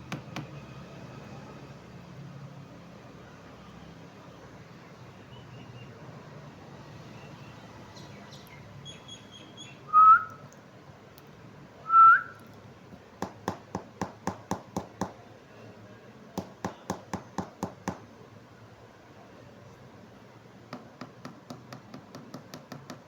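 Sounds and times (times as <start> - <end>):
parrot whistles: 9.6 - 10.4, 11.9 - 12.4.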